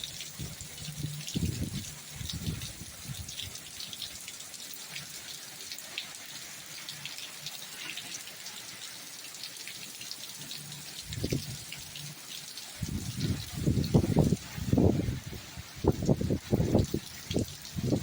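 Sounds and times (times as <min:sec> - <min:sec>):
rain pattering: 0:00.0 - 0:18.0.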